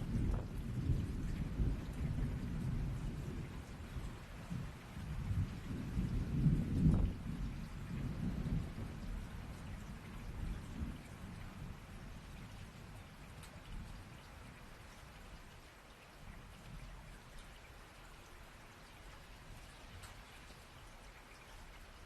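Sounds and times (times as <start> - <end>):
thunder rumbling: 0.0 - 14.0
steady rain: 0.0 - 22.0.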